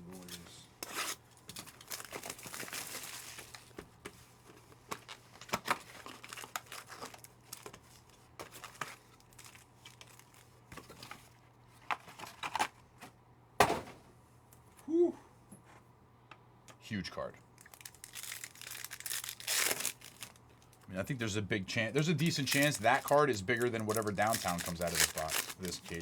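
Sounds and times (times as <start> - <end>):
plastic packaging crinkling: 0.8 - 3.8, 4.4 - 11.2, 17.6 - 20.9, 22.0 - 26.0
trading cards being handled: 17.6 - 20.9, 22.0 - 26.0.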